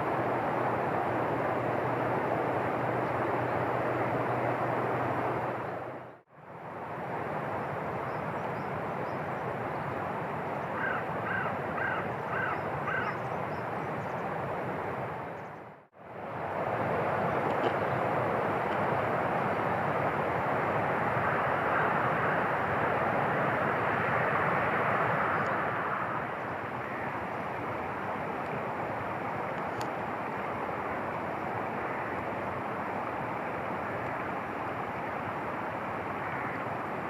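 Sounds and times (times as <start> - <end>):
bird calling: 10.8 - 13.7.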